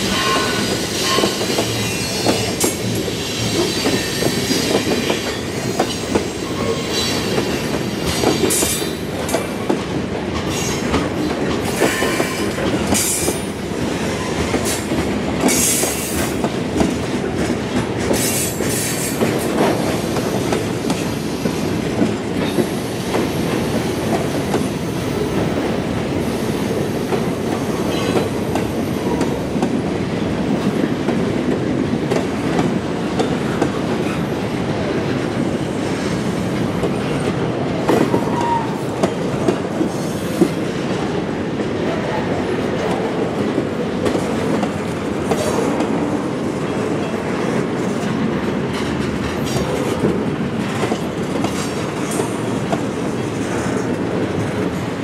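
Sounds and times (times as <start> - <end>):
train wheels clacking over rail joints: 0.0 - 41.2, 42.7 - 55.0.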